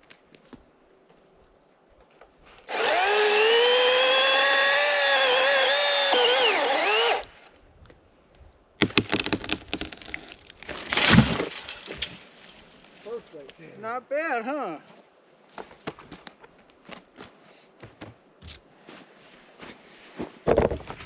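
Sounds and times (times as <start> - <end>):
battery chainsaw whining: 2.7 - 7.3
tree crashing down: 8.8 - 13.0
tree trunk cracking: 8.8 - 13.1.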